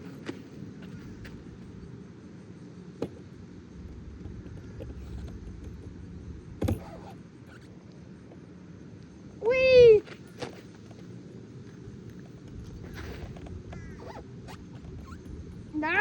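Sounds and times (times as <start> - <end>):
gusty wind buffeting microphone: 3.2 - 7.6, 12.4 - 16.0.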